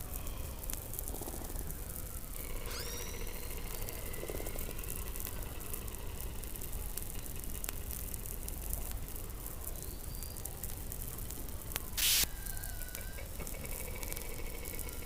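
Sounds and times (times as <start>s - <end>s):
faint thin whistling tones: 0.0s - 7.2s, 9.2s - 13.4s
underwater rumble and hiss: 0.0s - 15.0s
loud short noise burst: 12.0s - 12.3s.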